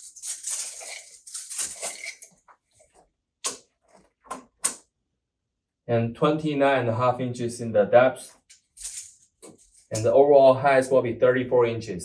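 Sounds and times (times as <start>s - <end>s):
tape measure scraping rattle: 0.0s - 2.3s, 8.6s - 10.1s.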